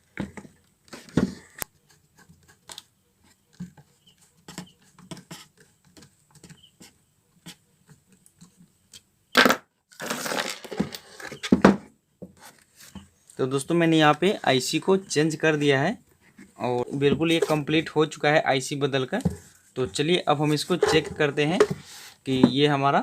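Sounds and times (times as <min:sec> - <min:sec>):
loud scraping rustle: 0:10.0 - 0:11.5.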